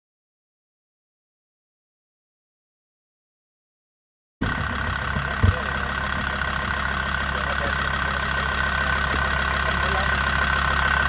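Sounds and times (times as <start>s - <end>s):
engine idling: 4.4s - 11.0s.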